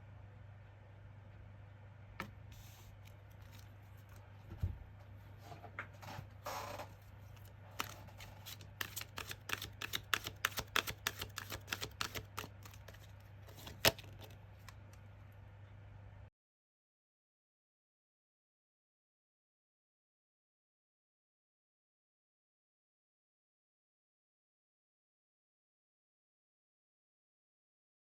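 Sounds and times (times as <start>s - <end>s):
cards sliding swish: 2.5s - 3.7s, 7.8s - 14.3s
cards clicking and tapping: 7.3s - 15.0s.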